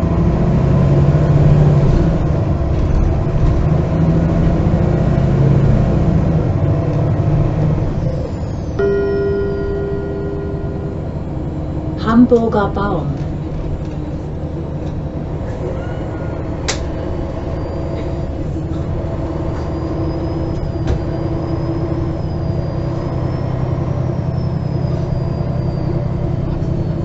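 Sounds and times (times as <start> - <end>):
bus engine drone: 0.0 - 27.0
faint high whine: 8.4 - 12.2.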